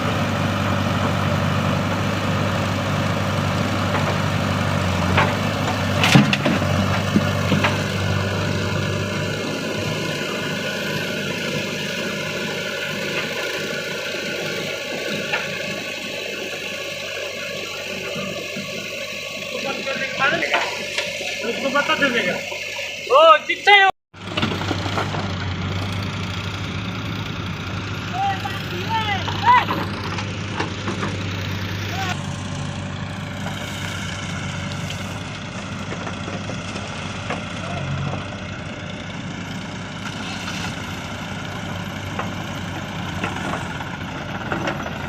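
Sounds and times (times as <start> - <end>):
heavy diesel engine running: 0.0 - 45.0.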